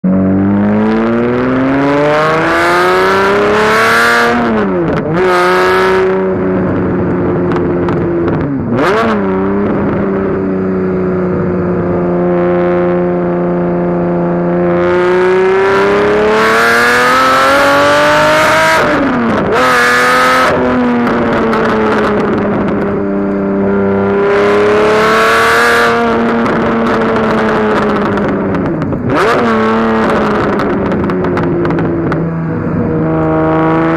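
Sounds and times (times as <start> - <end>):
car engine revving through gears: 0.0 - 33.9.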